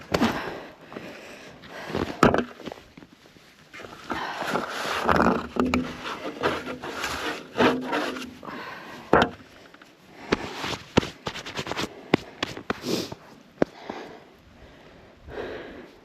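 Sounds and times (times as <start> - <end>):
wood scraping and knocking: 2.1 - 2.7, 4.5 - 8.4, 9.1 - 12.6.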